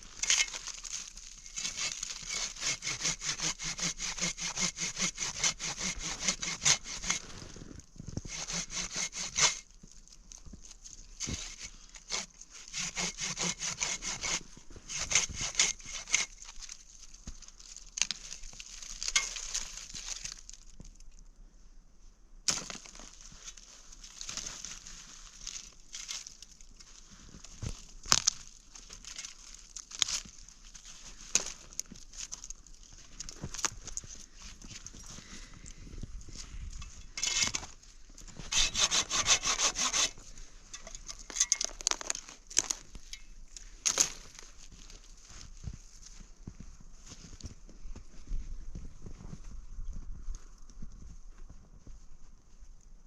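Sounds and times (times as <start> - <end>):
hand saw cutting wood: 1.5 - 7.5, 8.2 - 9.7, 11.2 - 16.8, 37.1 - 37.7, 38.4 - 42.8.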